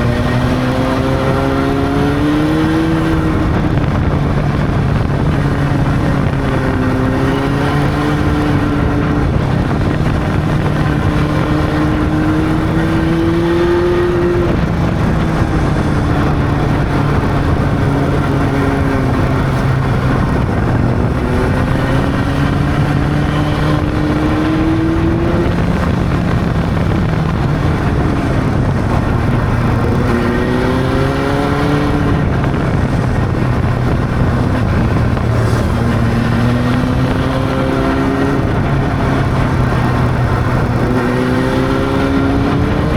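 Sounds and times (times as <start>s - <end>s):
motorcycle engine running: 0.0s - 42.9s
wind and road noise: 0.0s - 42.9s.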